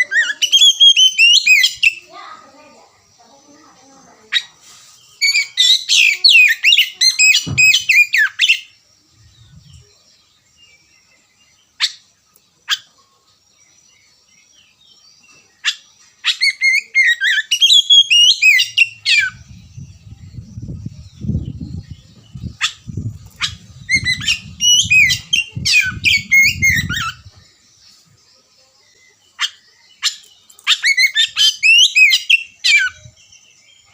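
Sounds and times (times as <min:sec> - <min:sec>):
bird singing warbling phrases: 0:00.0 - 0:33.9
low rumble: 0:19.4 - 0:27.4.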